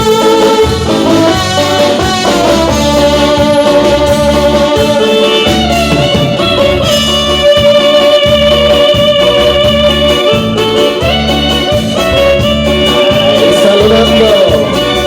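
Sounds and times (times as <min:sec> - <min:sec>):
live instrumental band music: 0:00.0 - 0:15.0.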